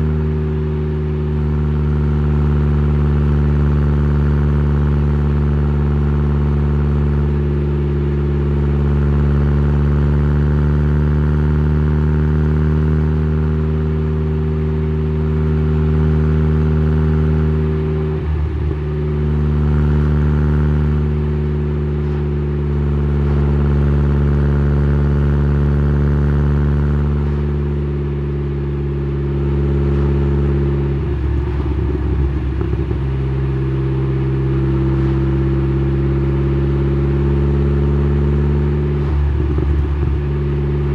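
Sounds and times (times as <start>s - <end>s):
car exhaust note: 11.3s - 40.9s
rough rattly exhaust: 27.0s - 36.8s, 37.5s - 40.9s.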